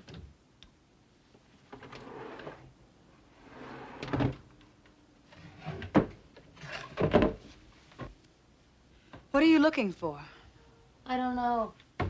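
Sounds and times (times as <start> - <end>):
furniture drawer sliding scrape: 1.9 - 2.7, 3.4 - 4.3.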